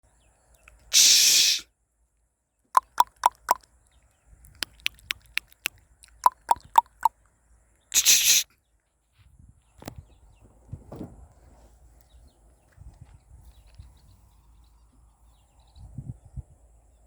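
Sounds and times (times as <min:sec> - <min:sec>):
brief rushing hiss: 0:01.0 - 0:01.6, 0:08.0 - 0:08.4
birds clicking calls: 0:02.8 - 0:03.6, 0:04.6 - 0:07.1.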